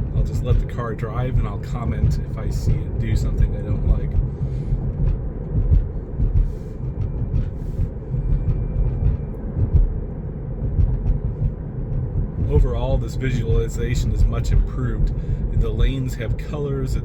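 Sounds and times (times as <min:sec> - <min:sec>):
tyres rumbling on road: 0:00.0 - 0:17.0.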